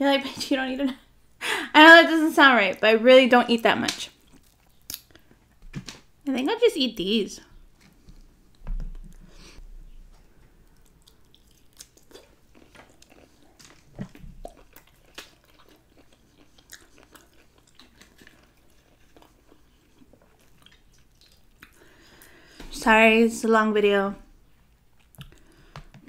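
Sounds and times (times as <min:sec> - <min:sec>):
wet mouth clicks: 0:04.2 - 0:05.2
close-miked chewing: 0:04.2 - 0:05.6, 0:10.4 - 0:22.4, 0:24.6 - 0:26.0.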